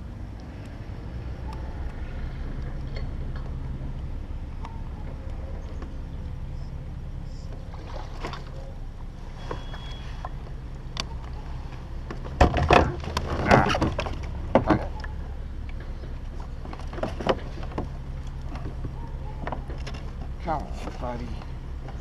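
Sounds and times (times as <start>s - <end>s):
knocks and rattles on plastic kayak: 12.1s - 15.0s, 16.6s - 21.0s.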